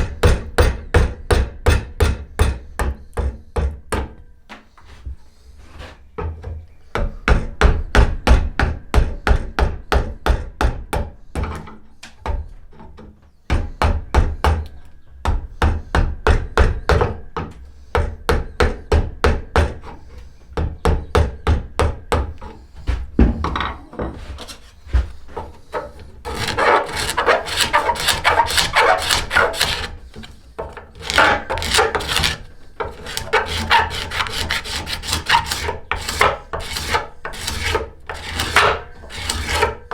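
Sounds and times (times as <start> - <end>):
hand tool scraping wood: 19.6 - 20.8, 22.1 - 39.9.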